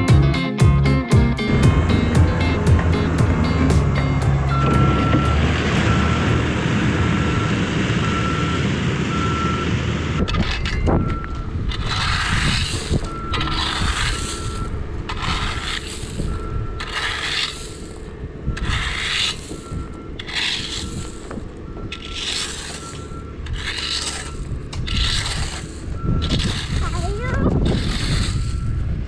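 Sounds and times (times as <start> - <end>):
rhythmic scraping: 0.0 - 7.5
engine running: 0.0 - 29.0.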